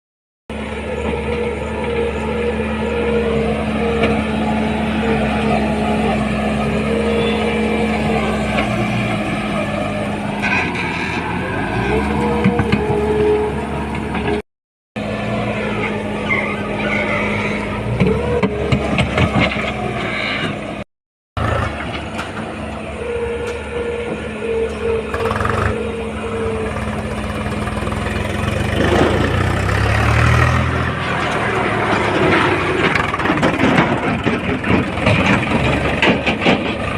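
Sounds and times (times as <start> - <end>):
heavy vehicle engine running: 0.5 - 14.4, 15.0 - 36.9
high engine tone: 0.5 - 14.4, 15.0 - 36.9
sharp knocks and clanks: 31.2 - 36.9.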